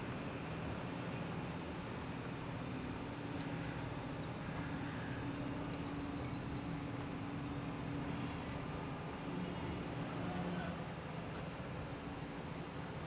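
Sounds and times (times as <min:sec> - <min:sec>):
low engine-like hum: 0:00.0 - 0:13.0
small bird chirping: 0:03.6 - 0:04.3, 0:05.7 - 0:06.9.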